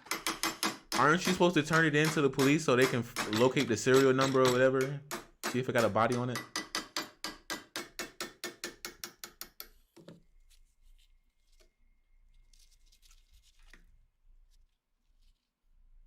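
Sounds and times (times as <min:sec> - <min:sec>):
faint scraping and rubbing: 0:09.9 - 0:15.8.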